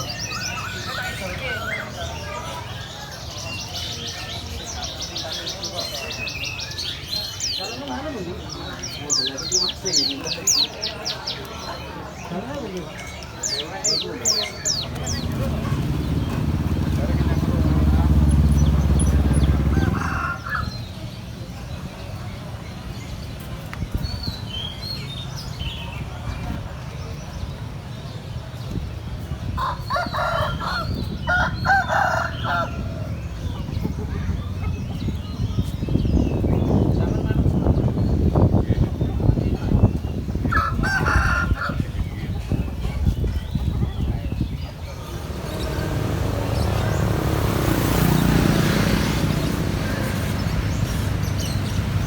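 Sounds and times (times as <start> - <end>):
market noise rumble: 0.0 - 52.0
small birds chirping: 0.0 - 52.0
vehicle engine passing by: 14.5 - 20.8, 44.8 - 52.0.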